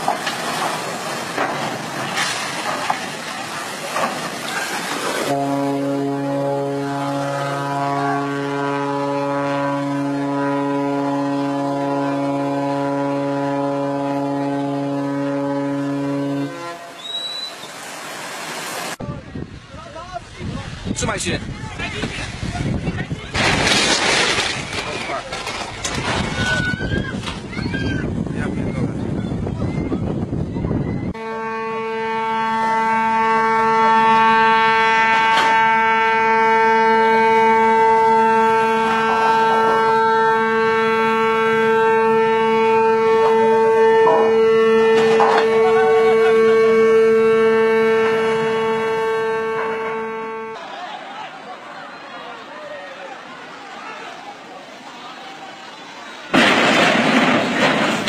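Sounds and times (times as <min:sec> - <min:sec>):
water noise: 0:00.0 - 0:58.0
wind: 0:00.0 - 0:58.0
ship's horn blast: 0:04.0 - 0:17.6, 0:31.1 - 0:50.8
short crackle: 0:23.3 - 0:26.6.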